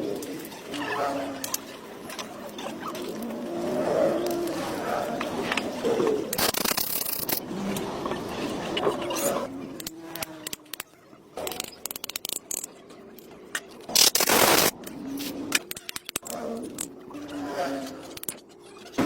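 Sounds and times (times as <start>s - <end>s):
metallic clicks and knocks: 9.8s - 12.7s.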